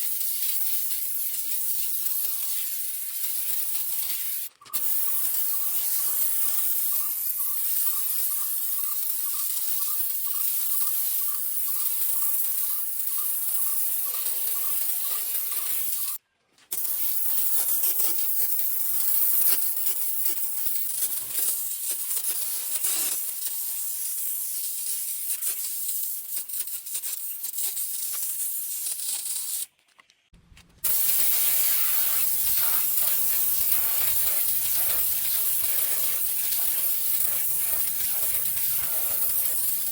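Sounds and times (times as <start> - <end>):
foam sprayer hissing: 0.4 - 16.2, 30.8 - 39.9.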